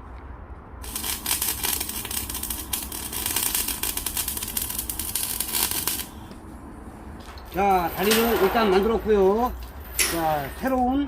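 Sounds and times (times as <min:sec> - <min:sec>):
arc welding crackling hiss: 0:00.8 - 0:06.3.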